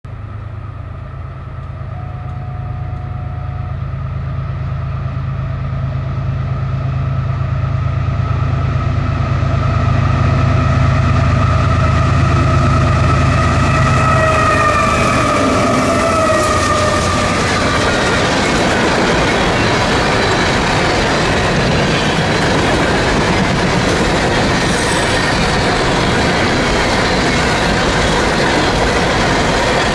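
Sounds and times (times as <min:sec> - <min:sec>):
rail noise: 0:00.1 - 0:29.9
train engine rumble: 0:00.1 - 0:29.9
whining tones: 0:00.3 - 0:07.4, 0:08.0 - 0:23.4.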